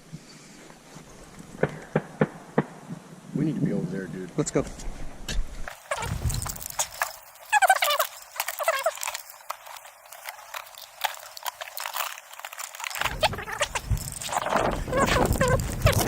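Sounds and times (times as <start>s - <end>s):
short wavering calls: 5.7s - 16.0s.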